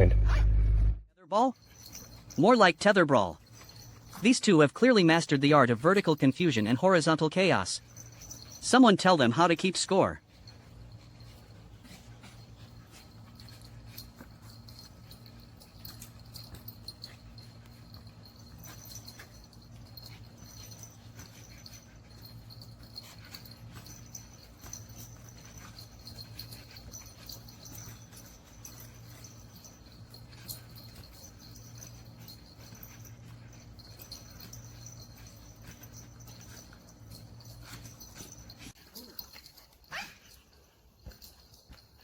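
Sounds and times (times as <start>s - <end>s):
steady low hum: 0.0s - 2.4s, 3.3s - 4.3s, 7.6s - 9.4s, 10.1s - 42.0s.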